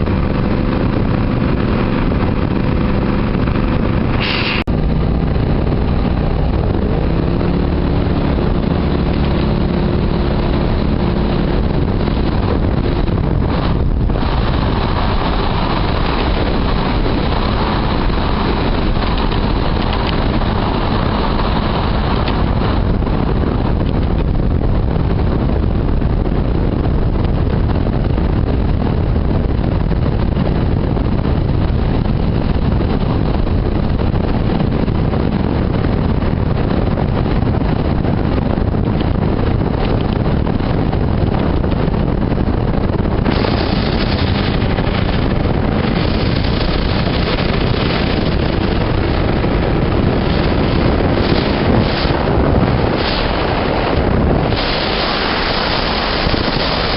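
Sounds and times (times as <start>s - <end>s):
motorboat engine running: 0.0s - 56.9s
wind buffeting microphone: 0.0s - 56.9s
hiss of wind or spray: 4.2s - 4.8s, 43.1s - 56.9s.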